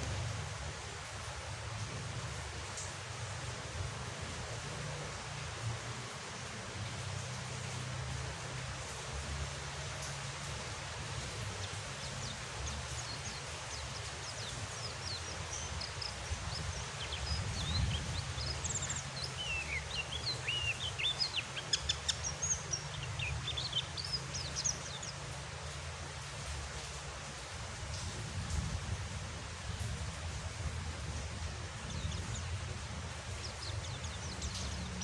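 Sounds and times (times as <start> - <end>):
steady rain: 0.0 - 35.0
bird twittering in high chirps: 12.1 - 25.2, 33.4 - 35.0.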